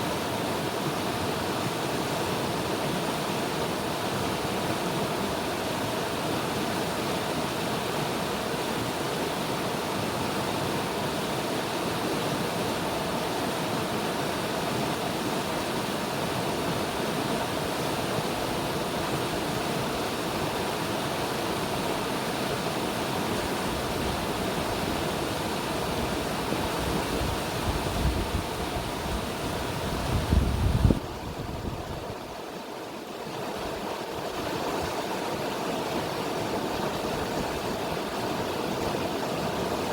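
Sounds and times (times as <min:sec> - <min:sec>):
river water rushing: 0:00.0 - 0:39.9
wind buffeting microphone: 0:26.6 - 0:32.3.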